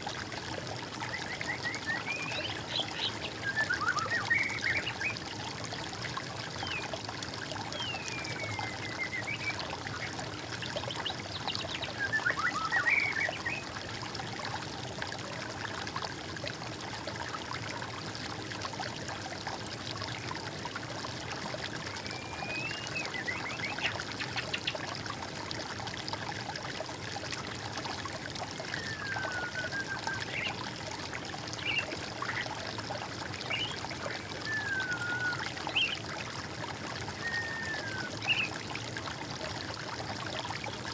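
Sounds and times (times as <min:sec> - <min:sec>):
water trickling: 0:00.0 - 0:40.9
songbird whistling: 0:07.8 - 0:09.5, 0:22.0 - 0:23.5, 0:28.8 - 0:30.5, 0:34.4 - 0:36.0, 0:37.2 - 0:38.5.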